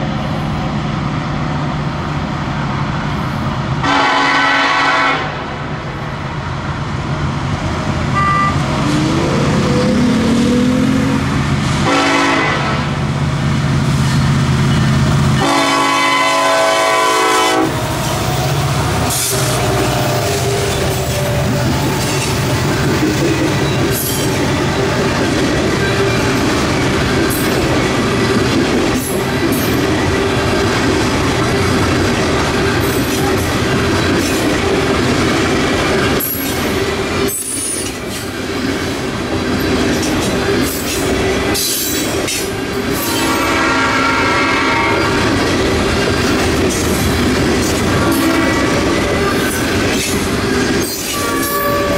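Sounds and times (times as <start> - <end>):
train horn blast: 3.8 - 5.6, 8.1 - 8.7, 11.8 - 13.0, 15.4 - 22.0, 43.0 - 45.3, 48.0 - 49.4, 51.1 - 51.9
freight cars rumbling and clattering: 17.7 - 43.2, 45.0 - 51.9.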